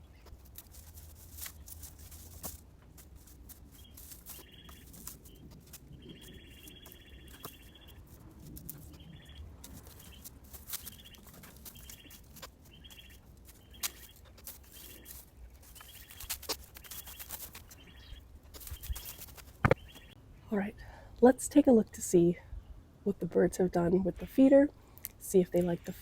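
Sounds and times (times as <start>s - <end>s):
small birds chirping: 0.0s - 20.2s
light rustling: 0.1s - 20.2s.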